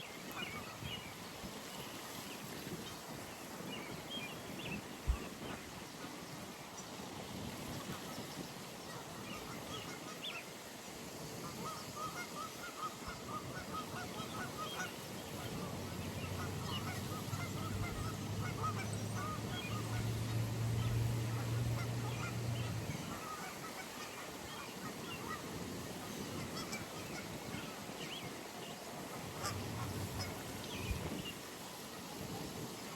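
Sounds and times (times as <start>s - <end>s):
geese honking: 11.5s - 27.7s, 29.1s - 30.6s.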